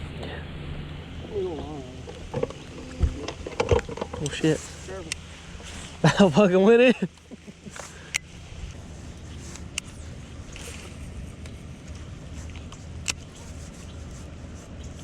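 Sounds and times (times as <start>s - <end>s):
boat motor rumbling: 0.0s - 15.0s
sharp clicks: 7.1s - 8.4s.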